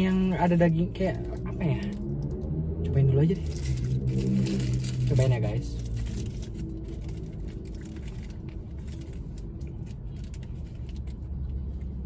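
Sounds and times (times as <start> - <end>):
car engine idling: 0.0 - 12.0
paper wrappers crinkling: 3.4 - 11.2.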